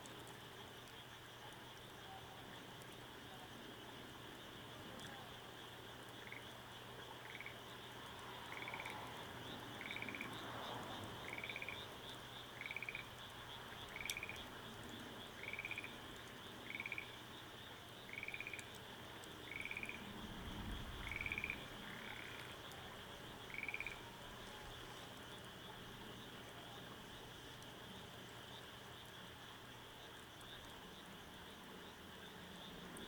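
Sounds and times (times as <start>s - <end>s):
frog croaking: 6.1s - 27.2s.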